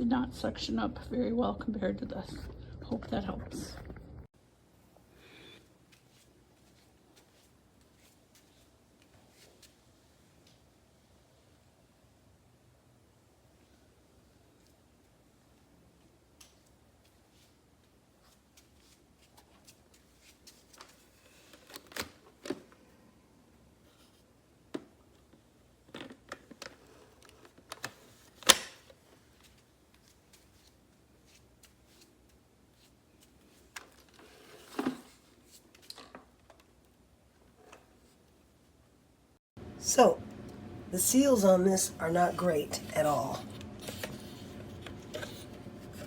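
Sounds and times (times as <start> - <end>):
vacuum cleaner being handled: 33.7 - 36.7.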